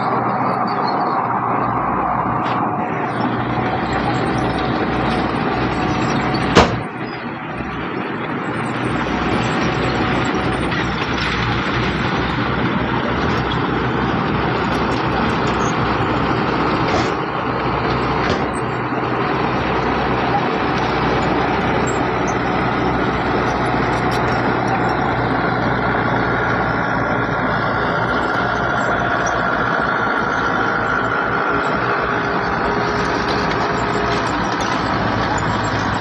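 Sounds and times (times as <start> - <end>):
heavy machinery diesel engines: 0.0 - 36.0
sharp bang: 6.5 - 6.9.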